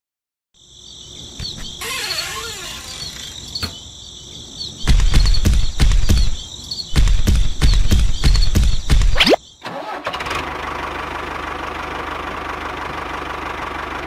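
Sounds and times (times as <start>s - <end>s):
crickets chirping: 0.6s - 9.6s
tractor engine chugging: 9.7s - 14.0s.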